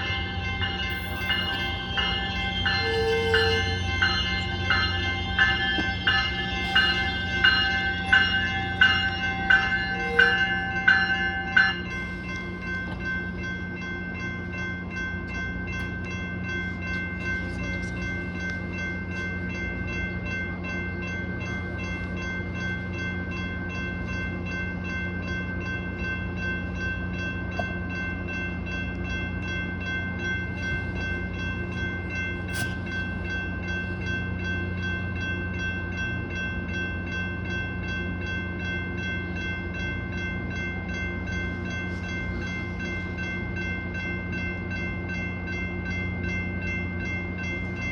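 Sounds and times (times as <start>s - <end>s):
high whine: 0.0s - 13.6s
diesel train engine hum: 0.0s - 47.9s
train bell ringing: 0.0s - 47.9s.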